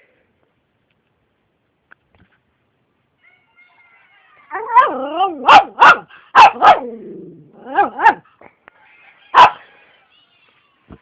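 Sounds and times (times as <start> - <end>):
dog barking: 4.5 - 7.0, 7.6 - 8.3, 9.3 - 9.6.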